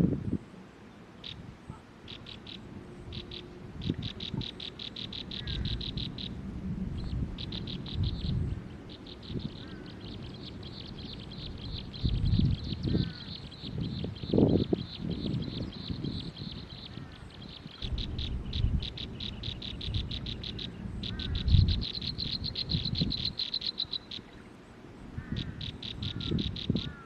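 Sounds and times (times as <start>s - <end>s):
bird chirping: 1.2s - 1.4s, 2.0s - 6.4s, 7.0s - 24.6s, 25.2s - 27.0s
low rumbling noise: 2.4s - 23.4s.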